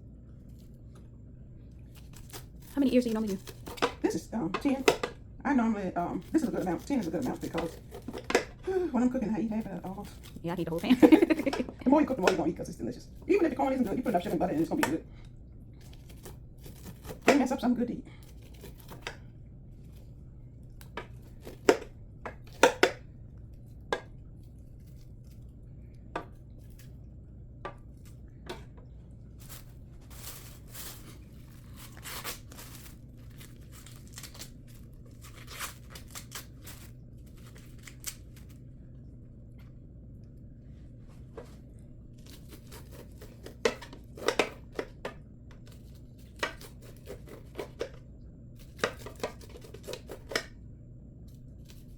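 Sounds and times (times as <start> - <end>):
knife cutting corn kernels: 6.2 - 8.6, 15.8 - 19.2, 42.3 - 48.0, 48.6 - 50.5
low hum: 14.6 - 43.6.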